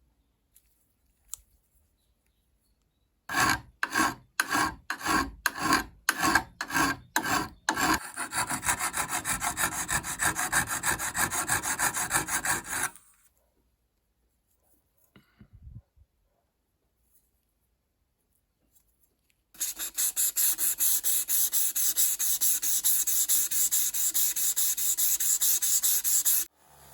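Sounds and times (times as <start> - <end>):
hand tool scraping workpiece: 3.3 - 13.0, 19.6 - 26.5.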